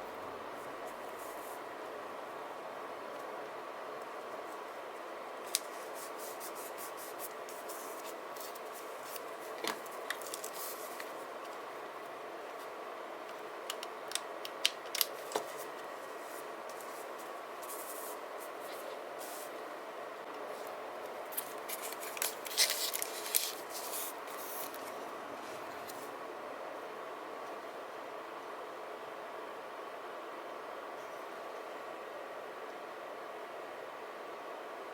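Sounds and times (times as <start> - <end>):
low background hum: 0.0 - 34.9
paper crinkling: 5.4 - 11.6, 14.1 - 19.5, 20.5 - 26.1.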